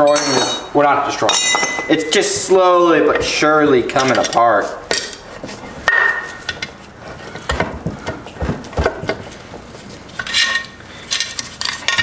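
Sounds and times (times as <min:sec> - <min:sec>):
metal parts knocking: 0:00.0 - 0:02.0
ringing metal clink: 0:00.0 - 0:02.2.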